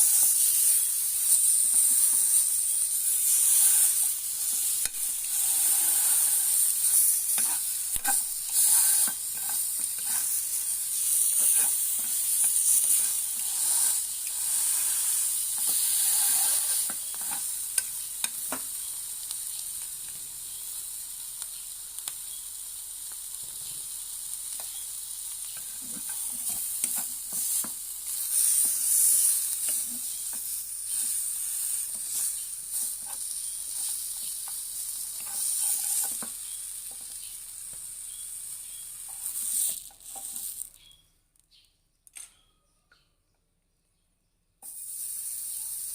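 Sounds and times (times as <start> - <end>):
ribs sizzling on a grill: 0.0 - 40.9, 44.6 - 45.9
utensil clicking and scraping: 0.1 - 18.6, 25.5 - 37.2.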